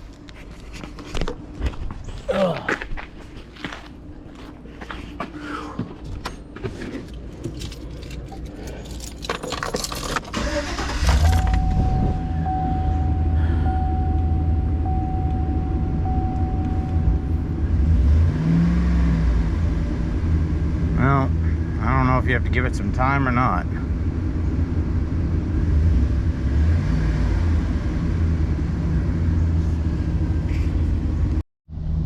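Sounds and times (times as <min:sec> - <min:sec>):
van engine starting and idling: 0:06.2 - 0:32.0
keys jangling in ignition: 0:07.0 - 0:11.9
warning chime: 0:11.2 - 0:17.6.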